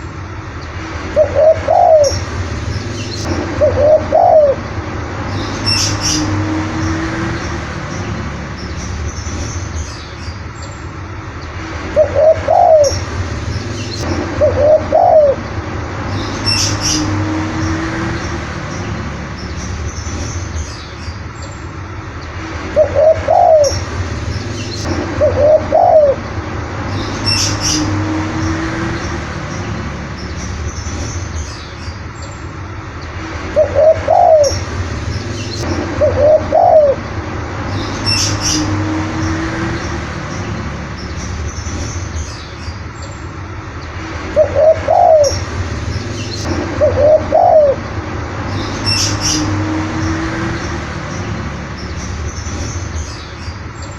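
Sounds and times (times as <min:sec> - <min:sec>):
dove cooing: 0:01.2 - 0:02.2, 0:03.6 - 0:04.6, 0:12.0 - 0:13.0, 0:14.4 - 0:15.4, 0:22.8 - 0:23.8, 0:24.8 - 0:26.2, 0:33.6 - 0:34.6, 0:36.0 - 0:37.0, 0:44.4 - 0:45.4, 0:46.7 - 0:47.8
high bird chirps: 0:01.2 - 0:10.8, 0:16.1 - 0:17.8, 0:26.9 - 0:32.4, 0:37.7 - 0:43.2, 0:44.4 - 0:53.9.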